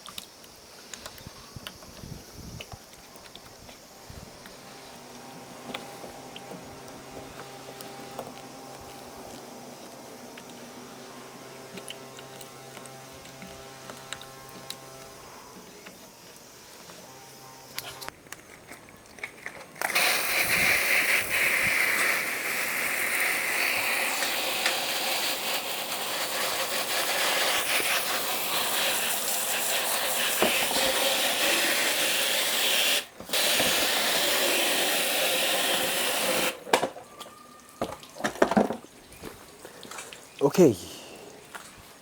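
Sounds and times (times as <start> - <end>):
water jet spraying: 19.8 - 36.7.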